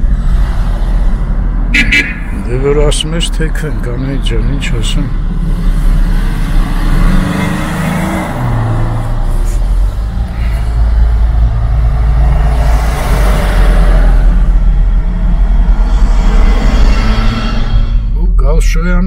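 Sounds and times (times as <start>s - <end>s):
cars driving past: 0.0s - 18.2s
engine hum: 0.0s - 18.8s
low traffic rumble: 0.0s - 19.0s
loud vehicle passing: 5.1s - 18.1s.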